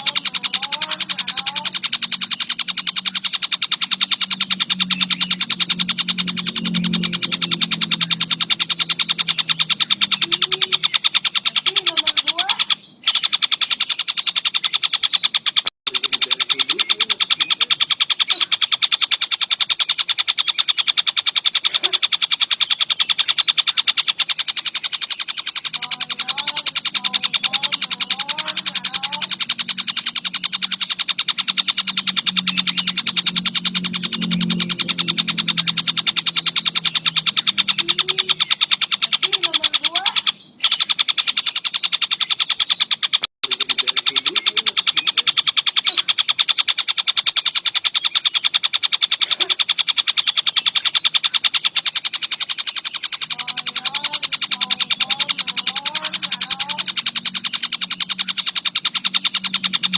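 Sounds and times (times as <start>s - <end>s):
faint bird chirps: 0.0s - 59.9s
kingfisher chattering call: 0.0s - 59.9s.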